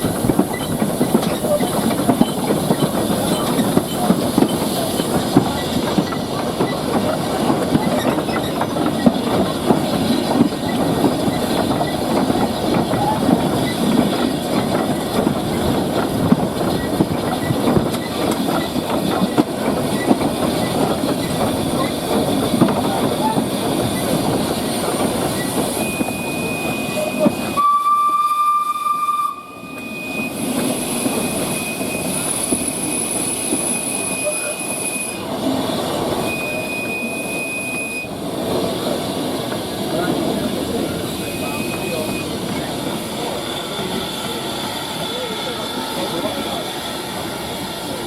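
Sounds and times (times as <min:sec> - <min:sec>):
train clattering on track: 0:00.0 - 0:48.0
steam locomotive whistle: 0:25.7 - 0:35.2, 0:36.3 - 0:38.1.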